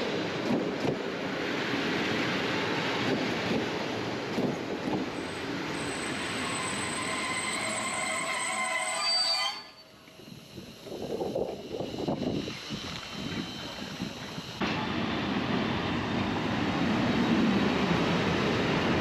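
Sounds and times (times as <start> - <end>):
train rumbling on rails: 0.0 - 19.0
wheel squeal: 5.1 - 10.1.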